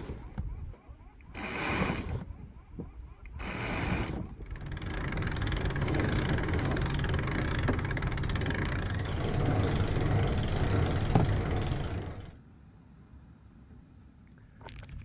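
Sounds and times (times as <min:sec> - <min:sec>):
engine running steadily: 0:03.4 - 0:12.4.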